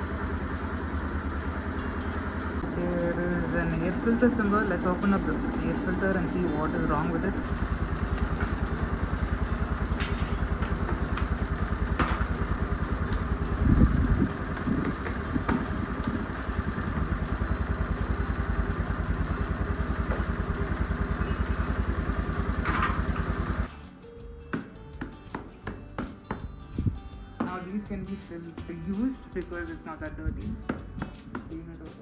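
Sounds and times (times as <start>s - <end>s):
motorcycle engine idling: 0.0s - 23.8s.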